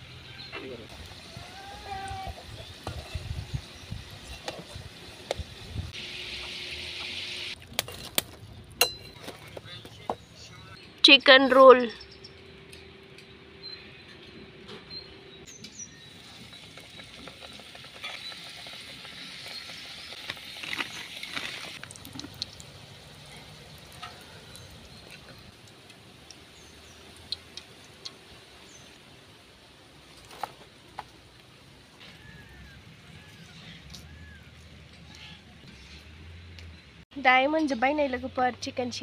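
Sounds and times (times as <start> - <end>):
food frying in hot oil: 0.9 - 7.6, 15.9 - 32.7.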